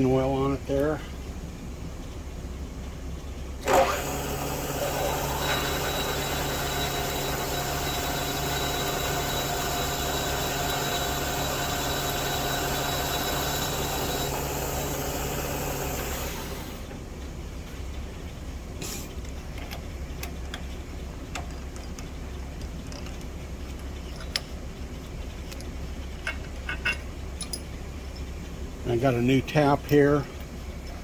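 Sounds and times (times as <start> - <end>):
milling machine spindle running: 3.6 - 17.0.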